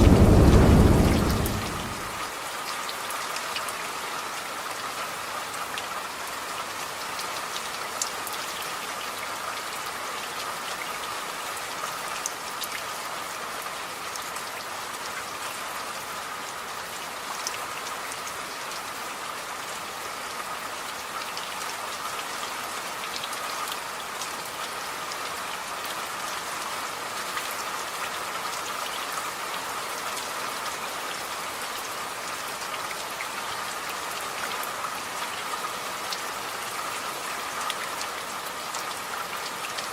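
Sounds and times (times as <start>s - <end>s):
steady rain hiss: 0.0s - 2.6s.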